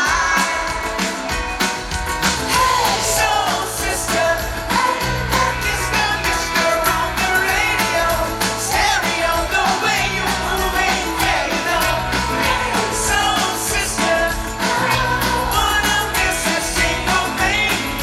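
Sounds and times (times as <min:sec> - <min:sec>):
lead singer singing: 0:00.0 - 0:01.4, 0:02.4 - 0:18.0
bass guitar: 0:00.0 - 0:18.0
drum beat: 0:00.0 - 0:18.0
pop-rock band playing: 0:00.0 - 0:18.0.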